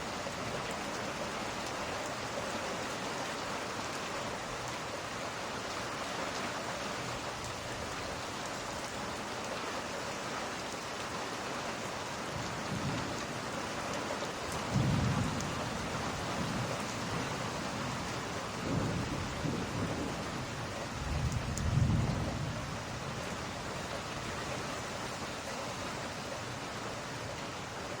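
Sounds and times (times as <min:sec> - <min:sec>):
steady rain: 0:00.0 - 0:28.0
thunder rumbling: 0:14.6 - 0:23.6.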